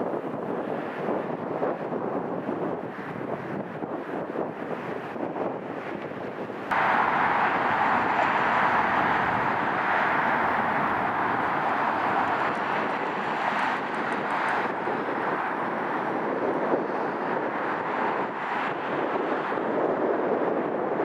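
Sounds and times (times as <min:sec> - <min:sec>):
jet airliner engine rushing: 0:06.7 - 0:21.0.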